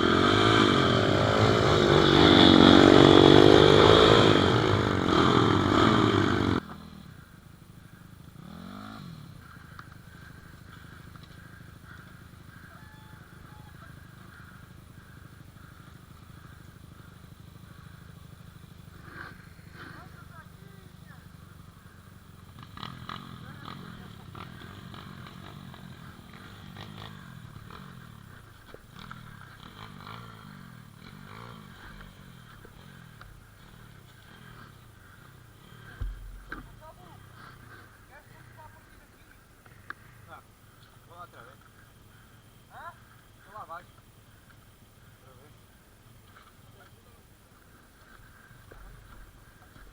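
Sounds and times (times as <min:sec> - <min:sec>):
motorbike engine revving: 0:00.0 - 0:07.3, 0:08.0 - 0:40.4
faint low engine note: 0:00.0 - 0:49.9
light knocks and rattles: 0:36.0 - 0:36.8.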